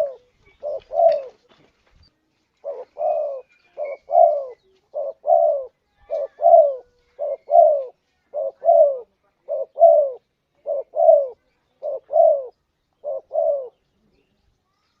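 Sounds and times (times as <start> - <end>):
dove cooing: 0.0 - 1.5, 2.6 - 13.8.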